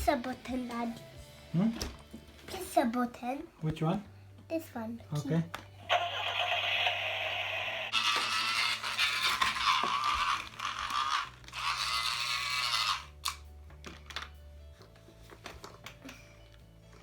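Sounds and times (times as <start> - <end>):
toy electronic sound effects: 5.9 - 13.4.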